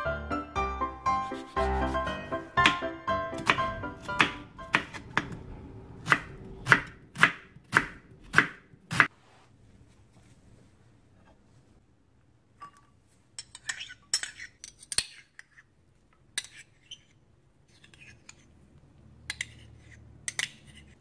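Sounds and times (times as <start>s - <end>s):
metal spoon clinking on ceramic bowls: 12.6s - 15.5s.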